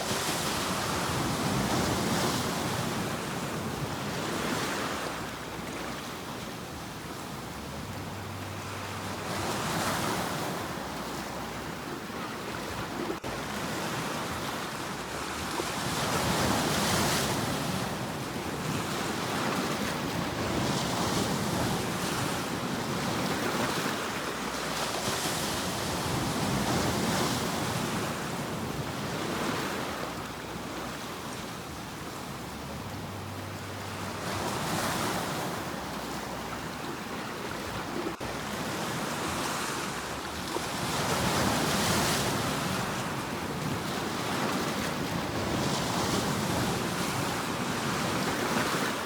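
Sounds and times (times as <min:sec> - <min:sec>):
ocean waves breaking on shore: 0:00.0 - 0:49.0.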